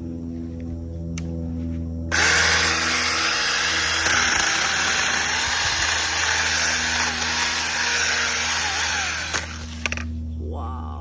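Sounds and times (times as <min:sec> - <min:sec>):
mini chainsaw cutting wood: 0:02.1 - 0:10.1.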